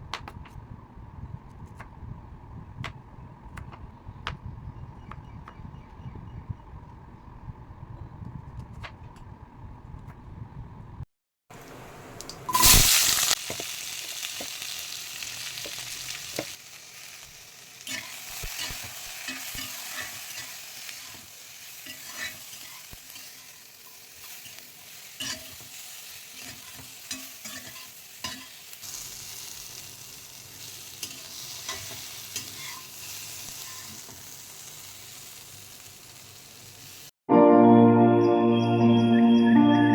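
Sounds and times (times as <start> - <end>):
food sizzling in hot oil: 12.4 - 37.1
spatula scraping a pan: 17.9 - 28.6, 31.0 - 34.1.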